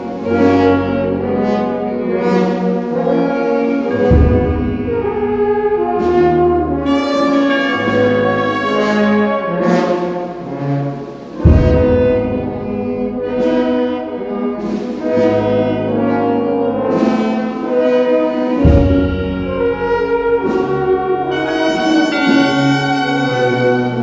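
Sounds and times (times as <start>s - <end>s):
brass band playing slow chords: 0.0s - 24.0s.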